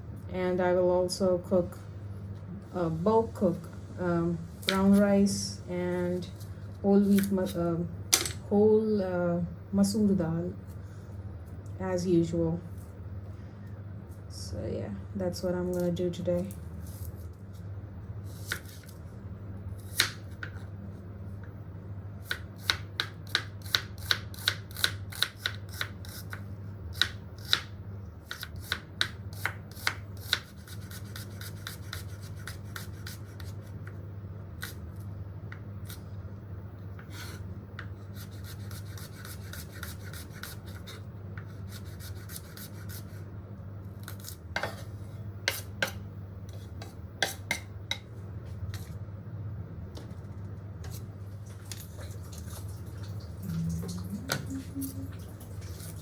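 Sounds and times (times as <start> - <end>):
steady low hum: 0.0 - 56.0
scraping or cutting vegetables: 16.5 - 19.0, 29.7 - 33.7, 37.0 - 43.2, 44.0 - 47.6, 54.8 - 56.0.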